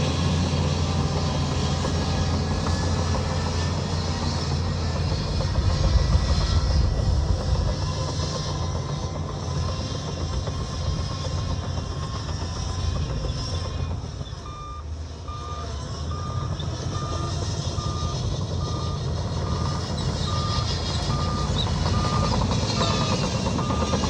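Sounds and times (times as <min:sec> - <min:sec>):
diesel machinery rumbling: 0:00.0 - 0:24.0
reversing alarm beeping: 0:14.4 - 0:24.0.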